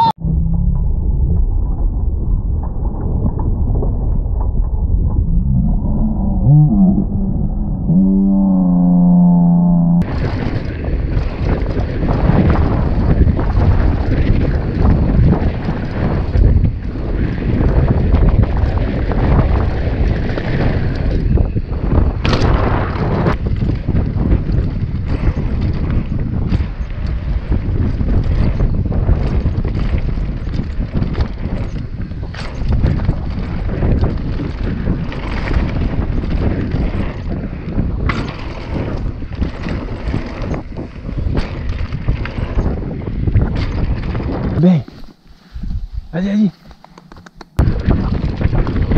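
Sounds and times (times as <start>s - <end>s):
tyres rumbling on dirt trail: 0.0s - 48.9s
wind buffeting microphone: 0.0s - 48.9s
bike rattles and knocks: 10.0s - 45.2s, 46.6s - 48.9s.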